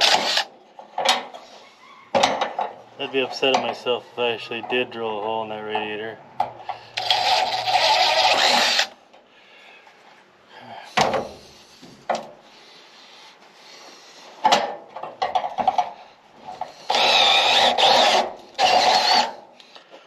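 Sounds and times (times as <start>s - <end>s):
power drill boring metal: 0.0s - 0.5s, 7.0s - 8.9s, 16.8s - 19.4s.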